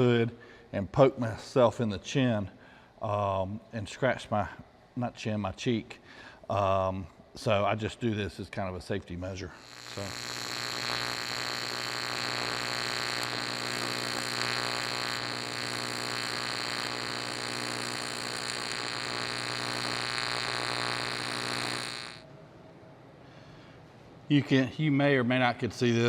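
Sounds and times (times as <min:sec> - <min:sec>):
welding arc buzzing: 0:09.4 - 0:22.3.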